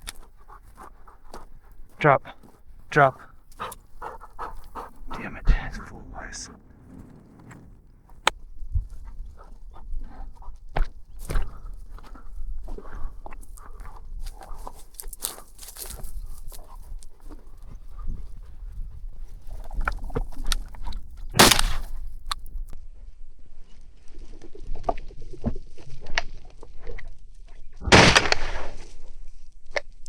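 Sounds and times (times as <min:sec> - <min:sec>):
footsteps crunching on rocky ground: 0:00.0 - 0:22.4
shotgun shot: 0:21.4 - 0:21.9, 0:27.9 - 0:28.8.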